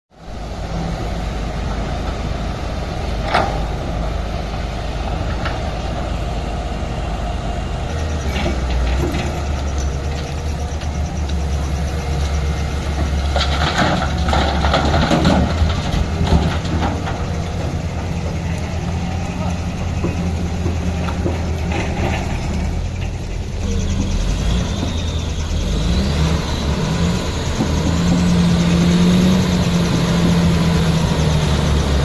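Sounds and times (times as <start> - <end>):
excavator diesel engine running: 0.2 - 32.0
metallic clanking and rattling: 12.9 - 18.6, 19.3 - 24.4.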